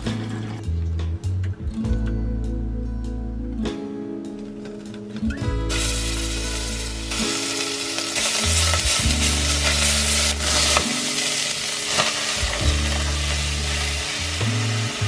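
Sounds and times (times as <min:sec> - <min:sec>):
background music with low bass: 0:00.0 - 0:15.0
garlic sizzling in a pot: 0:05.7 - 0:15.0.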